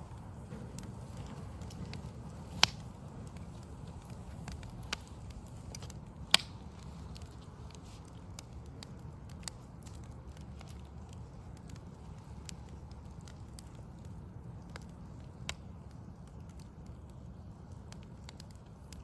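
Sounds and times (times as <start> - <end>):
burning logs crackling: 0.0 - 19.0
low steady rumble: 0.0 - 19.0
sharp pop of fire: 0.4 - 7.8.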